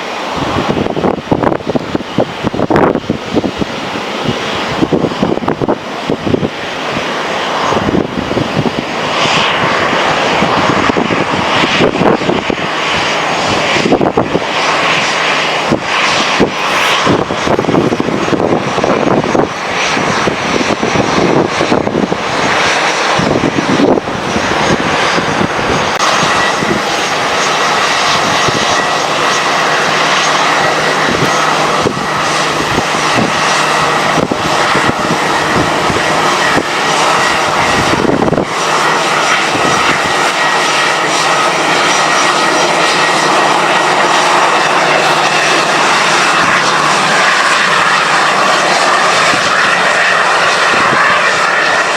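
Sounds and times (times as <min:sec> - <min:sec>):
high steady whine: 0:00.0 - 0:51.9
jet engines roaring: 0:00.0 - 0:51.9.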